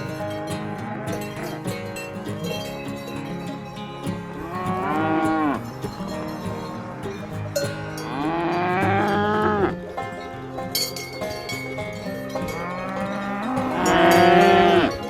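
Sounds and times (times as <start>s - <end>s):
cow mooing: 4.4s - 5.7s, 8.0s - 9.8s, 12.5s - 15.0s.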